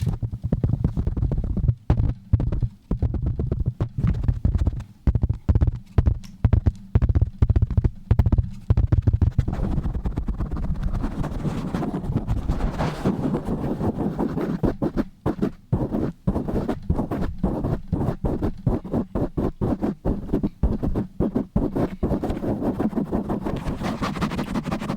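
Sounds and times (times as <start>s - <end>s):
rubbing strokes on microphone: 0.0s - 4.8s, 8.4s - 24.9s
deep thumps: 0.0s - 11.0s.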